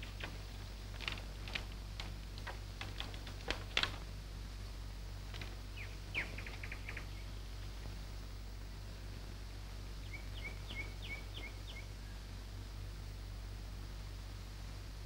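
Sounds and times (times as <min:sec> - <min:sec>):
steady low hum: 0:00.0 - 0:15.0
small birds chirping: 0:05.4 - 0:07.7, 0:09.9 - 0:12.4.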